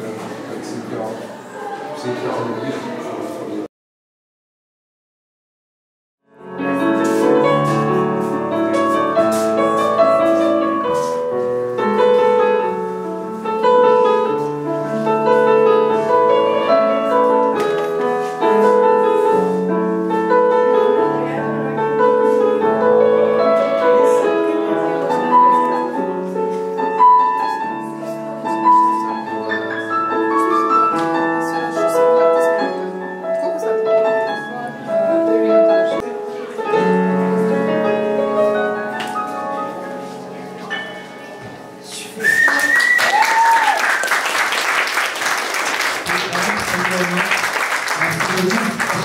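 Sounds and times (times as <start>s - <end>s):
piano music: 6.2s - 42.2s, 43.1s - 49.0s.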